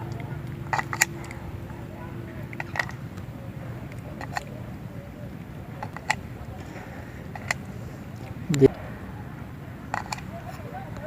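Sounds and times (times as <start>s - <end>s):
toy utensils clicking and tapping: 0.0s - 4.7s, 5.4s - 8.4s, 9.9s - 10.6s
steady low hum: 0.0s - 11.0s.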